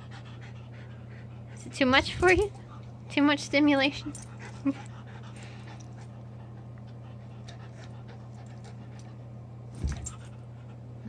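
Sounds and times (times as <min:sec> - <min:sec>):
dog panting: 0:00.0 - 0:03.2, 0:03.8 - 0:09.4
low electrical hum: 0:00.0 - 0:11.0.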